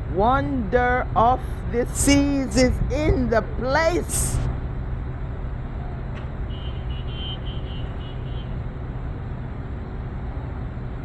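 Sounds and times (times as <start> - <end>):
steady low rumble: 0.0 - 5.9.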